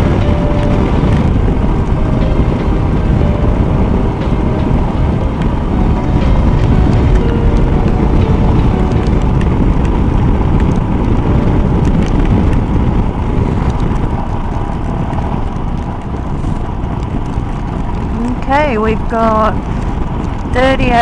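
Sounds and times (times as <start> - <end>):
faint engine tone: 0.0 - 21.0
wind rushing over microphone: 0.0 - 21.0.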